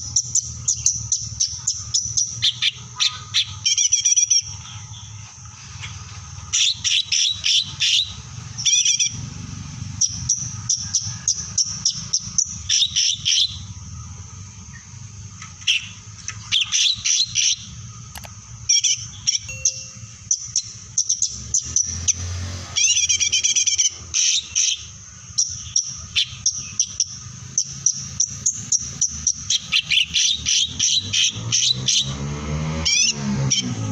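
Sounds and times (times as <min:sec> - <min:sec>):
songbird chirping: 0:00.0 - 0:33.9
low steady hum: 0:13.6 - 0:21.0.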